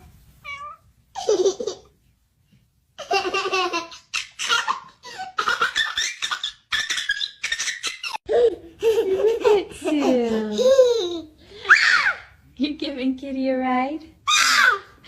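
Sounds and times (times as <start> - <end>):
young child giggling: 3.0 - 11.3.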